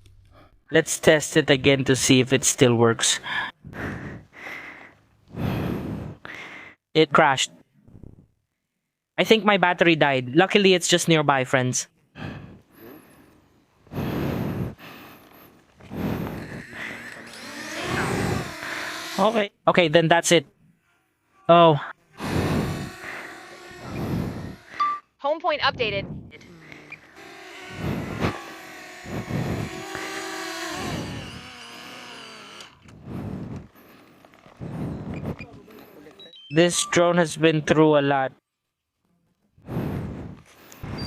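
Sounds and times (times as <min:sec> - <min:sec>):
heavy breaths: 0:03.1 - 0:06.8, 0:12.1 - 0:19.4, 0:20.5 - 0:25.0, 0:25.7 - 0:36.3, 0:39.6 - 0:41.0
drone propellers whirring: 0:13.9 - 0:19.5, 0:22.1 - 0:25.0, 0:25.6 - 0:35.7
low bumps: 0:15.7 - 0:19.4, 0:22.2 - 0:35.7.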